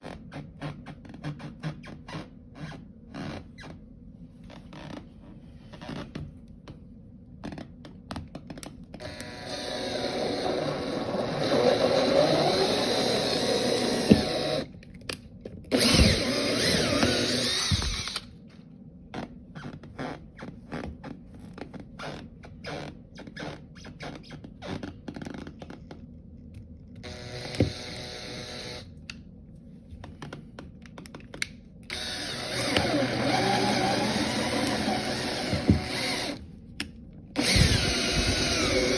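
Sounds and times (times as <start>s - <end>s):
power drill running: 9.0s - 14.7s, 15.7s - 18.3s, 27.0s - 28.9s, 31.9s - 36.4s, 37.4s - 38.9s.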